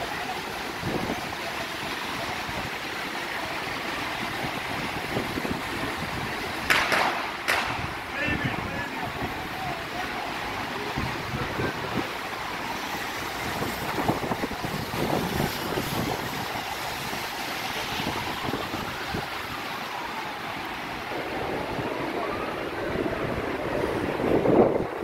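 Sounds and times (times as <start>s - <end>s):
steady rain: 0.0s - 25.0s
traffic hiss on wet roads: 0.0s - 25.0s
wind buffeting microphone: 4.2s - 9.6s, 13.2s - 25.0s.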